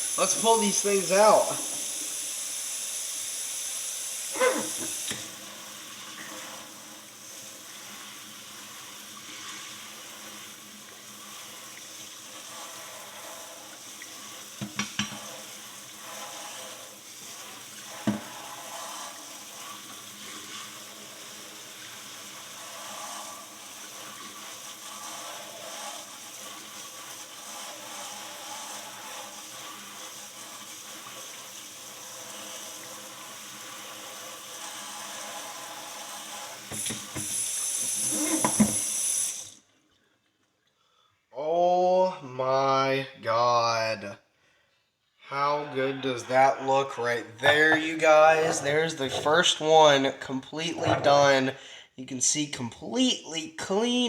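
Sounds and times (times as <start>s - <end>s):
water running and splashing: 0.0s - 39.6s.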